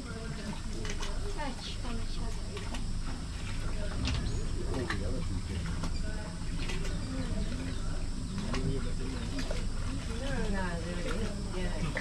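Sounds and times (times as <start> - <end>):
low rumble: 2.8 - 8.3.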